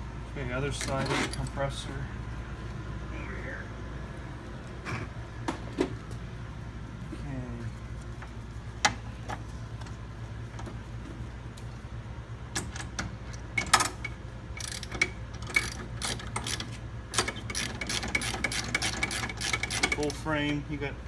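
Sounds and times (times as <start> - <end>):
steady low hum: 0.0 - 21.0
ratchet wrench clicking: 14.6 - 20.2.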